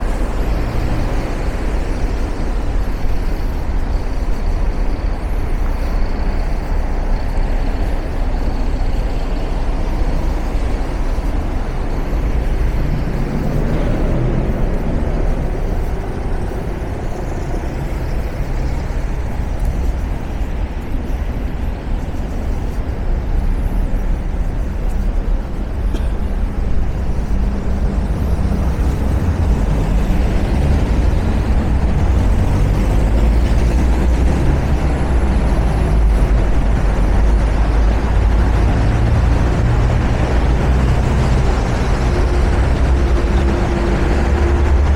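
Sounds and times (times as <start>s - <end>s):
traffic rumble: 0.0s - 44.9s
vehicle passing close: 7.5s - 20.7s, 26.4s - 44.9s.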